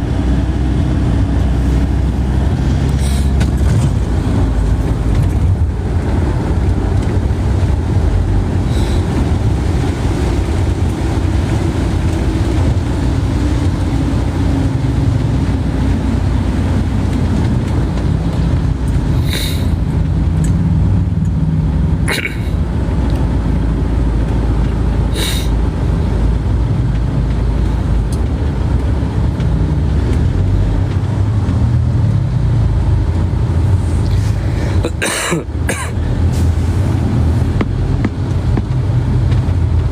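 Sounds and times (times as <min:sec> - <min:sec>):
low vehicle rumble: 0:00.0 - 0:39.9.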